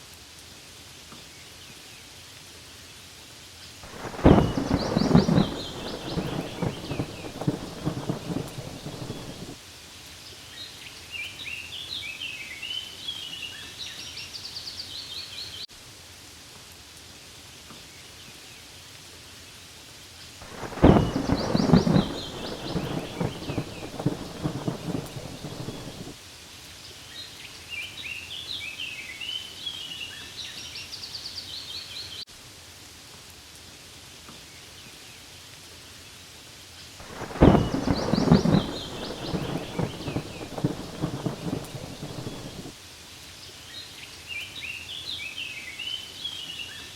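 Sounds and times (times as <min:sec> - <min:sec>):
rain falling on leaves: 0:00.0 - 0:46.9
bird chirping: 0:03.9 - 0:09.5, 0:20.5 - 0:26.1, 0:37.1 - 0:42.7
thunder rumbling: 0:03.9 - 0:09.6, 0:20.4 - 0:26.2, 0:37.0 - 0:42.8.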